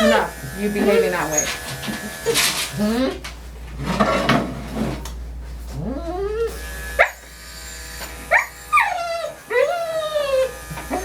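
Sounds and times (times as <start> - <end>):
dog yelping: 0.0 - 3.3, 5.8 - 7.3, 8.2 - 11.0
dog whining: 0.0 - 3.4, 5.7 - 11.0
electric dog clippers humming: 0.0 - 3.4, 5.6 - 11.0.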